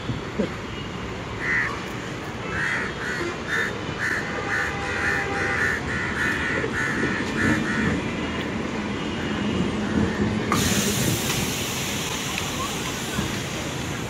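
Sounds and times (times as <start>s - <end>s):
train wheels rumbling on rail: 3.4s - 14.0s.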